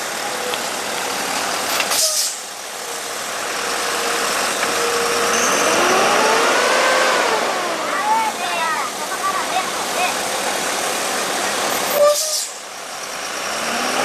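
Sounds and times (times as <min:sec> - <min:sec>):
vehicle engine revving: 0:04.1 - 0:08.2, 0:13.1 - 0:14.0.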